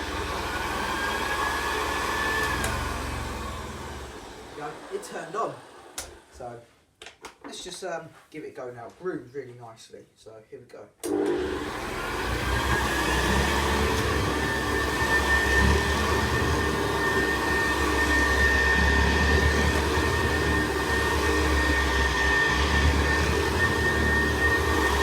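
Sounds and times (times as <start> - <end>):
vacuum cleaner motor whine: 0.0 - 6.3, 11.0 - 25.0
noisy brush roll: 12.0 - 25.0.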